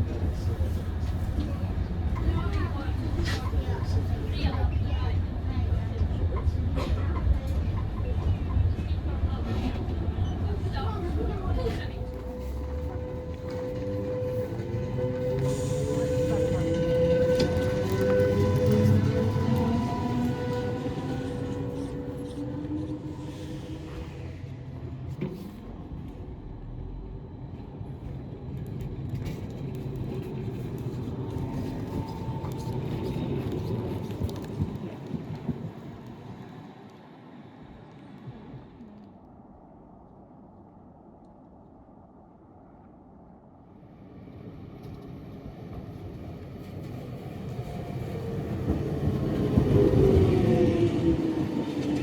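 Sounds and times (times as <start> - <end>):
electric train rumbling: 0.0 - 41.2, 42.0 - 52.0
electric train approaching: 10.0 - 25.0, 44.0 - 52.0.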